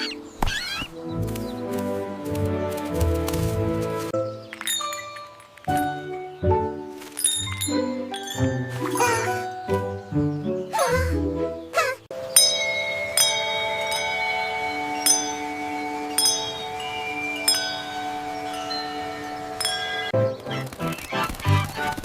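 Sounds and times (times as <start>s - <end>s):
wind chimes ringing: 4.3s - 6.4s, 7.0s - 10.1s, 12.2s - 20.2s.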